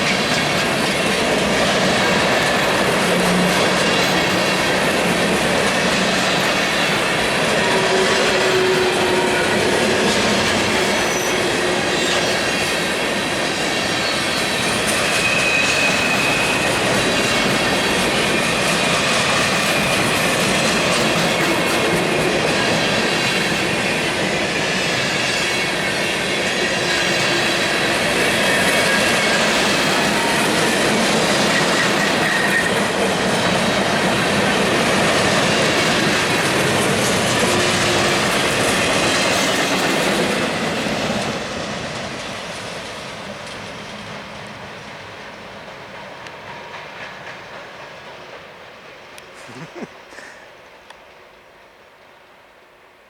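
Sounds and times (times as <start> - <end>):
freight cars rolling on rails: 0.0 - 50.2
wheels squealing: 6.5 - 20.9.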